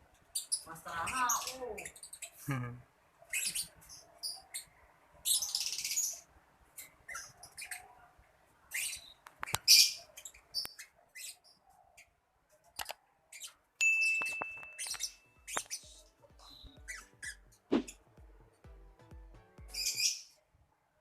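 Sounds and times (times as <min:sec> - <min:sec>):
lovebird chirping: 0:00.3 - 0:02.6, 0:03.3 - 0:08.0, 0:08.7 - 0:12.2, 0:12.8 - 0:18.0, 0:19.7 - 0:20.4.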